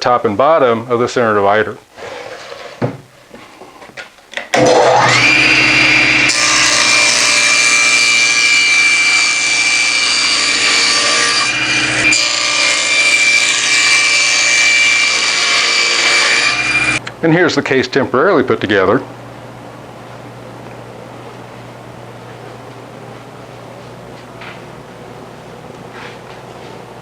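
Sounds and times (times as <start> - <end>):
table saw whine: 4.5 - 17.0
saw blade cutting plywood: 4.6 - 17.0.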